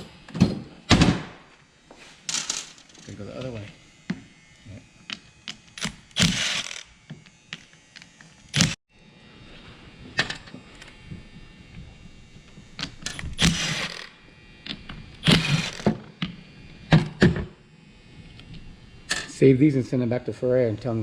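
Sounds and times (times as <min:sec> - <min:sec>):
metal parts and tools clinking: 0:02.3 - 0:03.2.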